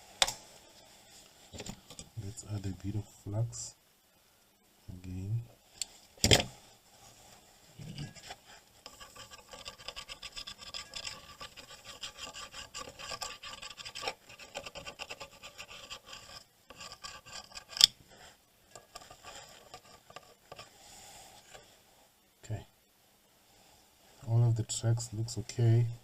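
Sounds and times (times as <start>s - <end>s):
scraping on a circuit board: 7.8s - 20.7s.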